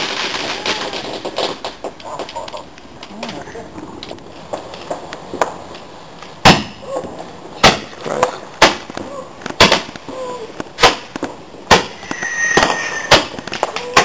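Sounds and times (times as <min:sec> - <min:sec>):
fireworks bangs: 0:00.0 - 0:02.7, 0:07.6 - 0:14.0.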